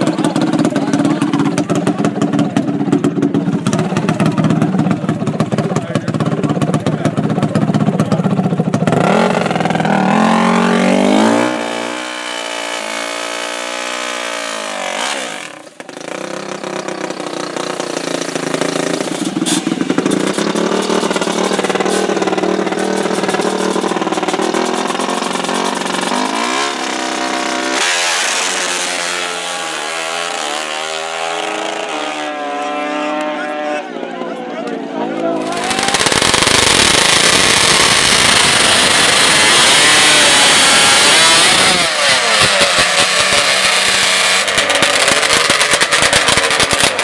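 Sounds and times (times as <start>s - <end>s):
atv engines revving: 0.0s - 47.0s.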